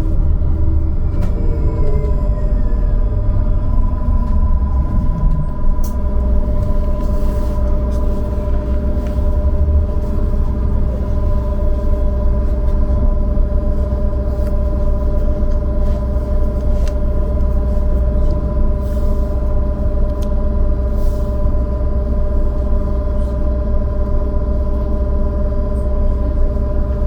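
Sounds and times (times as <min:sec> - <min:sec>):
electrical whine: 0:00.0 - 0:20.9
trolleybus rumble: 0:00.0 - 0:27.0.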